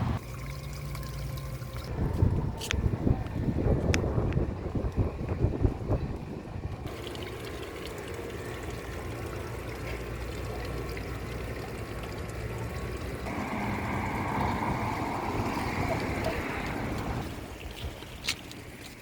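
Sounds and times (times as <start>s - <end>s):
running water rushing: 6.7s - 19.0s.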